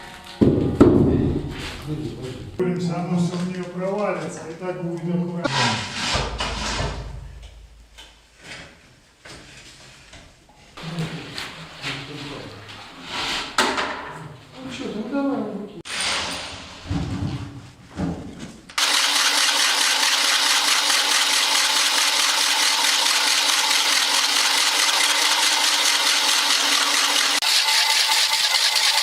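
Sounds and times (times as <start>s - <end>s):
power tool whirring: 18.8s - 29.0s.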